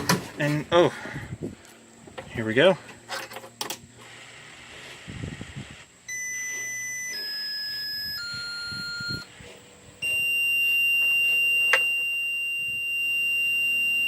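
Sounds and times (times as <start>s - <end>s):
continuous high warning beep: 6.0s - 14.0s
descending warning chime tones: 6.1s - 9.3s, 10.0s - 14.0s.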